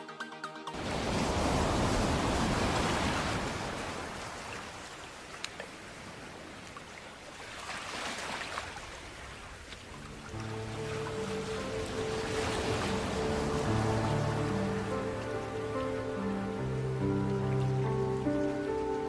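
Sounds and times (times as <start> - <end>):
music: 0.0 - 0.8, 10.0 - 19.0
waterfall rushing: 10.0 - 19.0.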